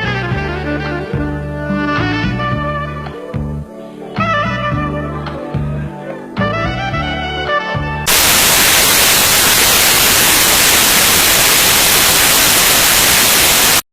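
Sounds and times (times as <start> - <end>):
loud static hiss: 8.1 - 13.9.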